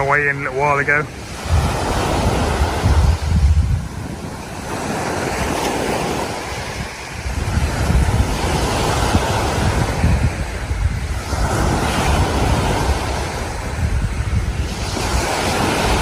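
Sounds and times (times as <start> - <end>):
waves breaking on beach: 0.0 - 16.0
wind buffeting microphone: 0.0 - 16.0.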